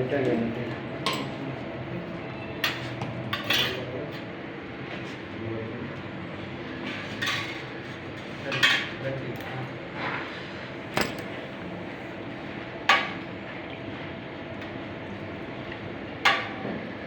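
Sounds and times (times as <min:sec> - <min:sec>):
steady background hum: 0:00.0 - 0:17.0
metal surgical instruments clinking: 0:11.0 - 0:11.3.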